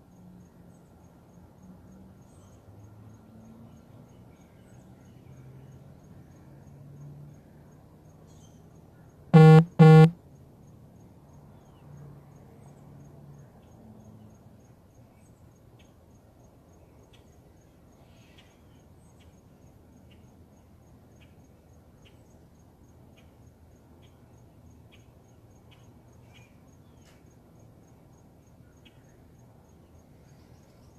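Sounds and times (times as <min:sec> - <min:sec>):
loud honk-like calls: 0:09.4 - 0:10.1.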